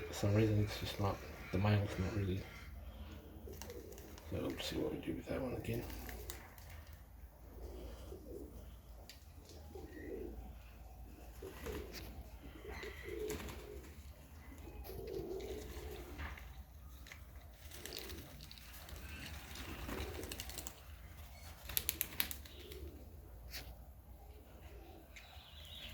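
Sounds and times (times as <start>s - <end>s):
pigeons cooing: 0.0s - 25.9s.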